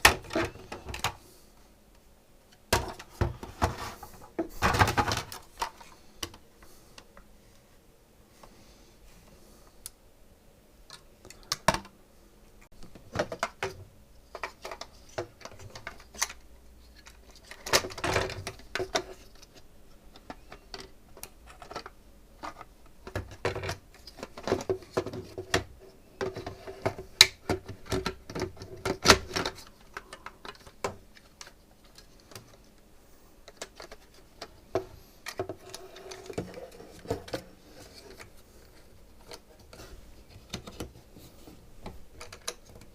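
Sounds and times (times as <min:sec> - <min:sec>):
small plastic parts clicking and clattering: 0:12.9 - 0:32.8, 0:33.4 - 0:41.0, 0:41.8 - 0:42.9.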